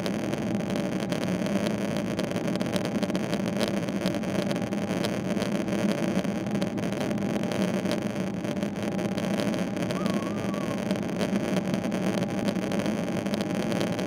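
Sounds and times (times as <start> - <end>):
jet engine drone in cabin: 8.1 - 14.0.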